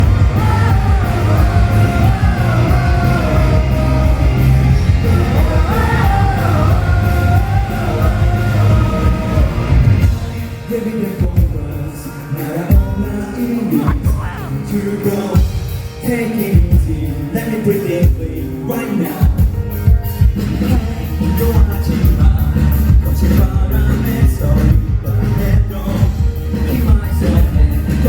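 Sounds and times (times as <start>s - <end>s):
live rock band: 0.0s - 28.0s
person singing: 0.0s - 28.0s.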